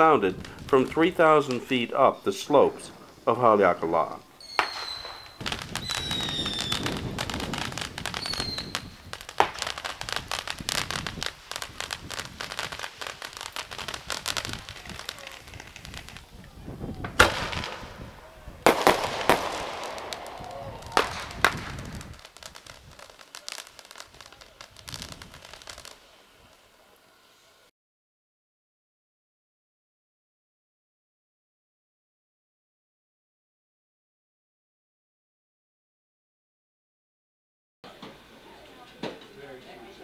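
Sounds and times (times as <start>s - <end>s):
fireworks crackling and popping: 0.0s - 27.5s
firework whistles: 4.4s - 16.4s, 17.1s - 27.6s
firework bangs: 4.4s - 26.8s.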